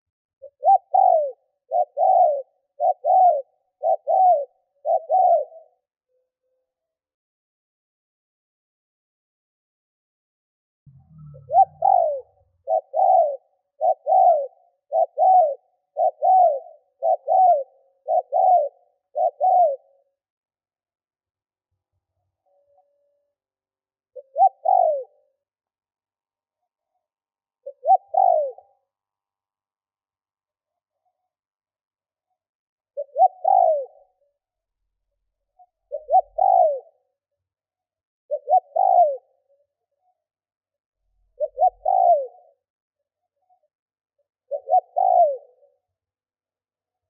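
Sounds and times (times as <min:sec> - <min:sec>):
dove cooing: 0:00.4 - 0:05.9, 0:11.1 - 0:20.1, 0:24.2 - 0:25.4, 0:27.6 - 0:28.8, 0:33.0 - 0:34.2, 0:35.6 - 0:37.2, 0:38.3 - 0:39.7, 0:41.3 - 0:42.7, 0:44.4 - 0:45.9.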